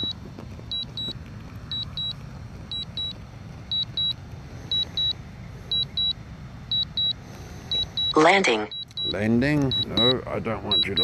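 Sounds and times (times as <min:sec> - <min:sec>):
remote controller double beeps: 0:05.8 - 0:11.0.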